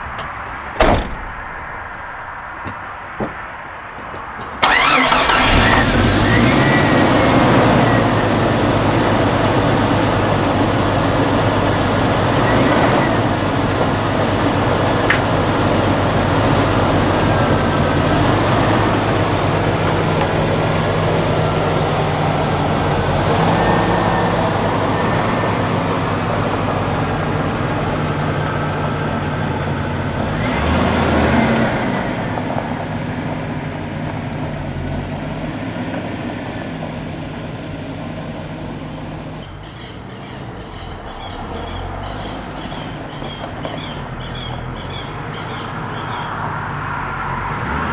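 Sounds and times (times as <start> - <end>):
road noise: 0.0 - 47.9
vehicle engine hum: 0.0 - 47.9.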